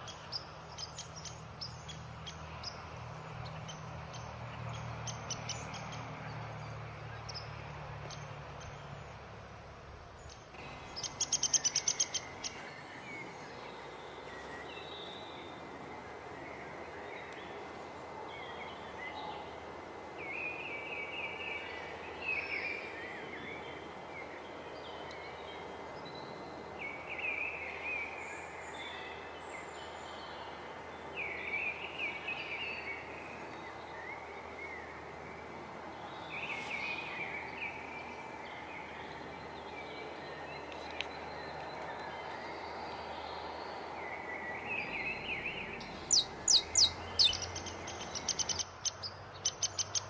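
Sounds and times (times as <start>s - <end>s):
outdoor ambient noise: 0.0s - 50.0s
wild birds singing: 0.0s - 50.0s
softer bird calls: 10.2s - 15.6s, 36.1s - 50.0s.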